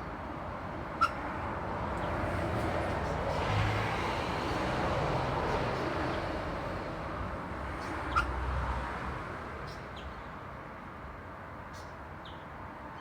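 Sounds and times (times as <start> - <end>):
road traffic noise: 0.1 - 10.1.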